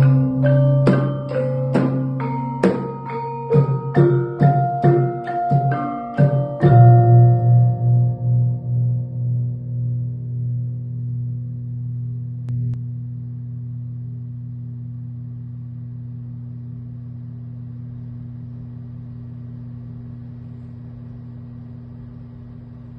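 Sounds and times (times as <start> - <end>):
large gong ringing: 0.0 - 17.6.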